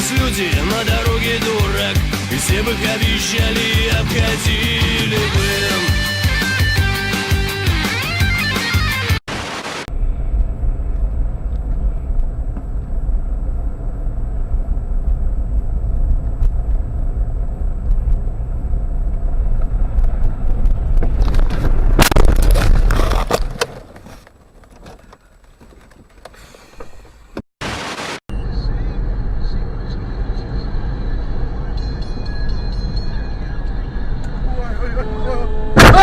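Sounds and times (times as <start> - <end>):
car engine and road rumble: 0.0 - 7.0, 9.9 - 27.4, 28.3 - 36.0
sudden loud burst of noise: 35.8 - 36.0.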